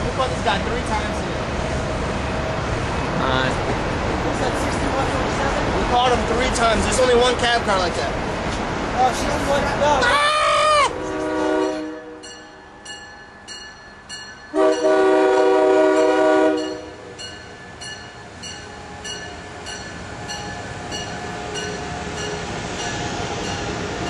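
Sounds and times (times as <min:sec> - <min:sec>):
passing train rush and wheel clatter: 0:00.0 - 0:24.0
multi-note train horn: 0:10.9 - 0:12.3, 0:14.5 - 0:17.1.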